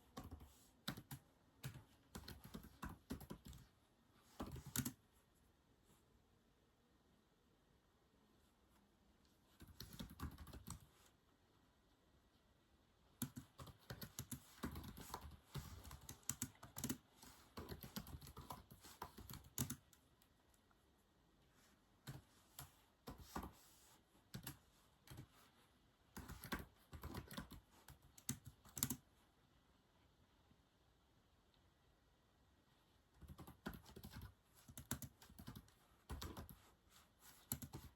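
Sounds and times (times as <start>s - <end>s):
typing on a keyboard: 0.0s - 3.7s, 4.3s - 5.0s, 9.6s - 10.9s, 13.2s - 20.0s, 24.3s - 25.3s, 26.2s - 29.0s, 33.2s - 36.6s, 37.4s - 37.9s.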